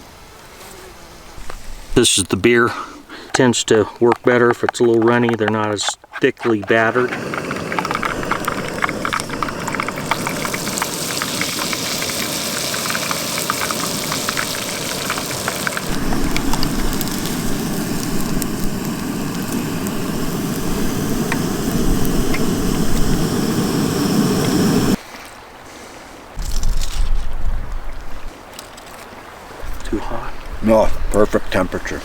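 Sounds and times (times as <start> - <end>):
fish frying in hot oil: 7.2 - 25.0
low rumble: 14.4 - 25.0.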